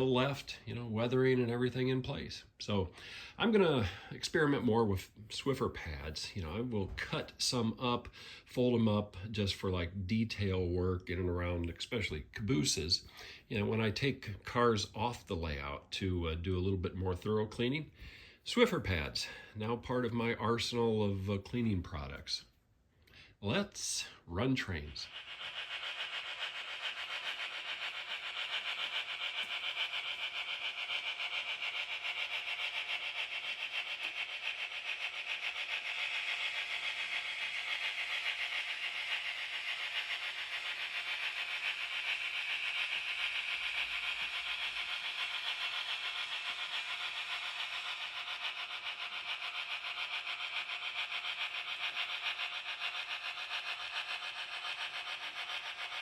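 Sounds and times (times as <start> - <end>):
model train motor whirring: 0.0 - 56.0
wheels rolling on rails: 23.8 - 56.0.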